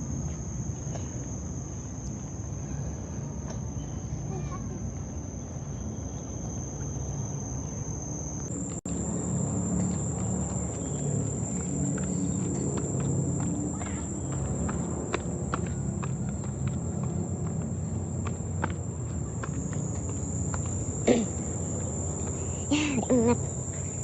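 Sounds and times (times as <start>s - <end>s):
insects droning: 0.0s - 24.0s
footsteps on a trail: 8.5s - 24.0s.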